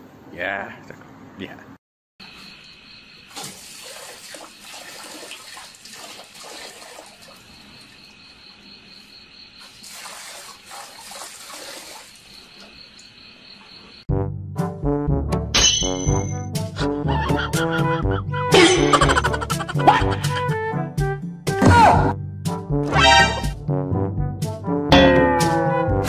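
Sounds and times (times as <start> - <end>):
crickets chirping: 2.2 - 14.1
dog lapping water: 3.3 - 7.5, 9.7 - 12.3
tap water splashing: 3.3 - 7.9, 9.6 - 13.1
brass music: 14.1 - 15.5, 16.4 - 21.2, 22.5 - 26.0.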